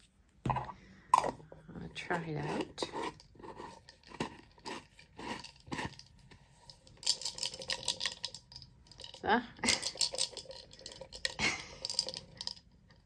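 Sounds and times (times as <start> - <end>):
glitter rattling in a container: 5.2 - 13.0.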